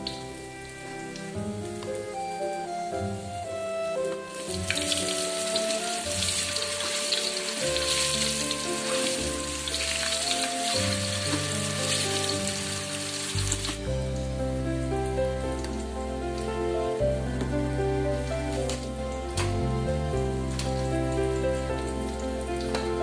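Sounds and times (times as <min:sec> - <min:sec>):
soft background music: 0:00.0 - 0:23.0
food sizzling in a pan: 0:04.3 - 0:13.8.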